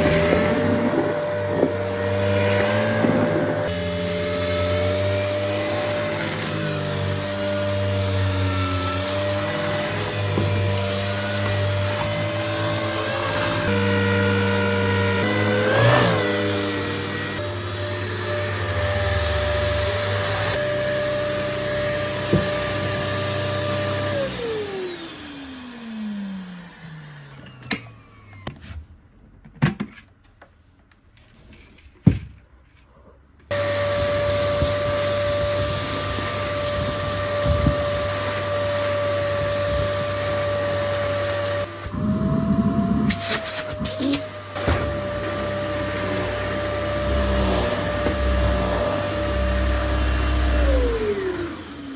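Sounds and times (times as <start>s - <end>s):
vacuum cleaner rattle: 0.0s - 20.5s, 33.5s - 51.9s
vacuum cleaner whine: 0.0s - 28.8s, 33.5s - 51.9s.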